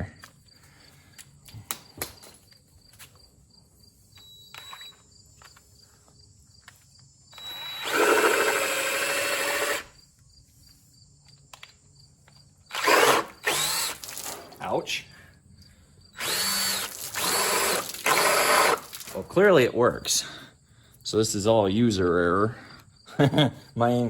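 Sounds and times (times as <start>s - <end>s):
cordless drill whining: 4.1s - 5.7s, 7.3s - 10.0s, 12.7s - 14.6s, 16.1s - 19.2s.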